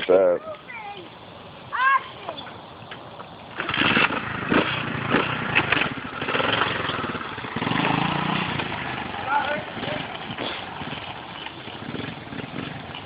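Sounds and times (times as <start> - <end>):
dirt bike engine running: 3.2 - 13.0.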